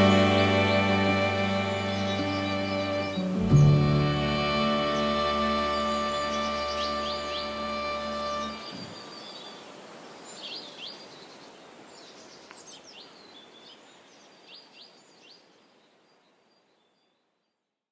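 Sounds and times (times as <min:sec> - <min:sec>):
music track: 0:00.0 - 0:08.8
birds chirping: 0:00.0 - 0:11.4
outdoor hiss: 0:00.0 - 0:16.6.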